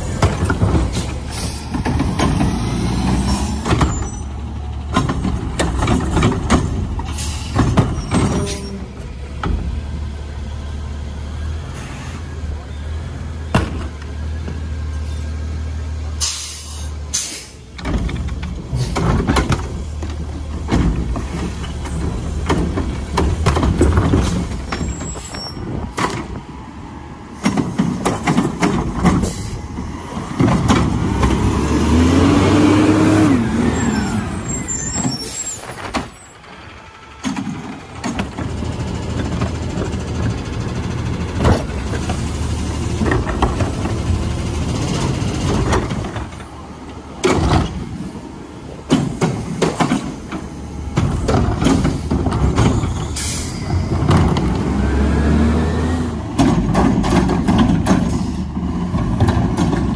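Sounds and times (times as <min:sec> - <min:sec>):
diesel engine humming: 0:00.0 - 0:59.9
air brakes hissing: 0:00.8 - 0:01.8, 0:07.0 - 0:08.9, 0:11.7 - 0:12.4, 0:16.2 - 0:17.7, 0:24.2 - 0:26.1, 0:29.2 - 0:29.8, 0:33.7 - 0:36.3, 0:52.8 - 0:54.0, 0:58.0 - 0:58.6.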